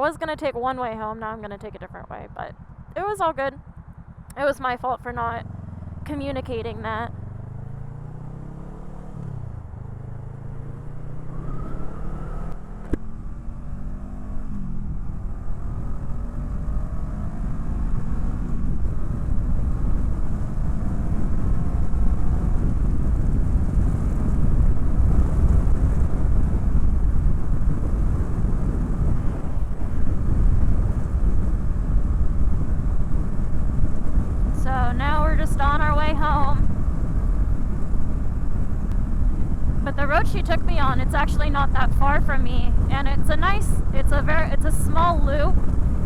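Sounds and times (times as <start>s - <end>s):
motorcycle engine accelerating: 0.0s - 46.0s
wind noise: 8.0s - 46.0s.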